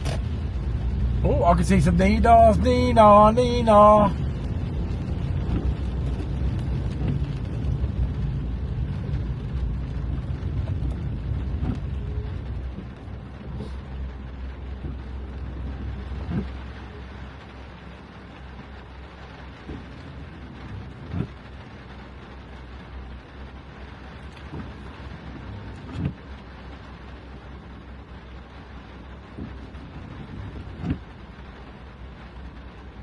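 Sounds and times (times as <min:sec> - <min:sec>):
car driving on wet road: 0:00.0 - 0:33.0.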